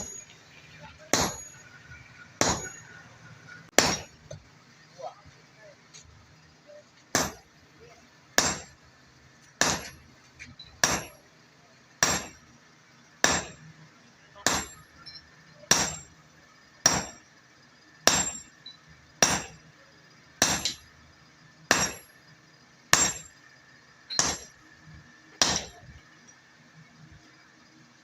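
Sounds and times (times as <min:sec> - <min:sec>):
hammer striking metal on anvil: 0:00.0 - 0:04.4, 0:07.1 - 0:07.5, 0:08.4 - 0:08.8, 0:09.6 - 0:10.0, 0:10.6 - 0:11.2, 0:12.0 - 0:12.4, 0:13.2 - 0:13.7, 0:14.4 - 0:16.2, 0:16.8 - 0:17.3, 0:18.0 - 0:19.6, 0:20.4 - 0:20.9, 0:21.7 - 0:22.2, 0:22.9 - 0:23.4, 0:24.1 - 0:24.6, 0:25.3 - 0:26.1.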